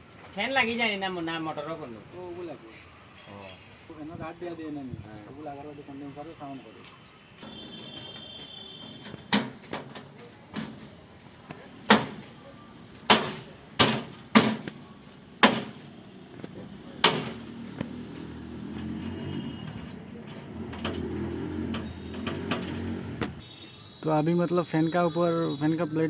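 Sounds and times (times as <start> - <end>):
sharp metal knocks and clanks: 9.0 - 10.9, 11.9 - 12.3, 13.1 - 14.8, 15.4 - 15.9, 17.0 - 17.4.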